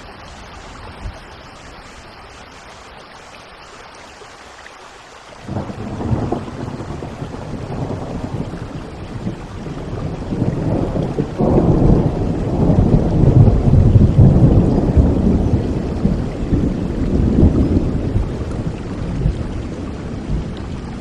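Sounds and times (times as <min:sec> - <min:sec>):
steady rain: 0:00.0 - 0:21.0
rolling thunder: 0:05.5 - 0:21.0.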